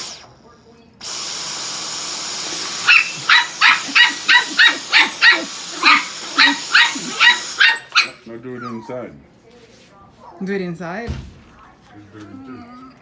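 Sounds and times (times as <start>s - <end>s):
vacuum cleaner whining: 0.0s - 0.4s, 1.0s - 8.2s
dog barking rapidly: 2.8s - 8.3s.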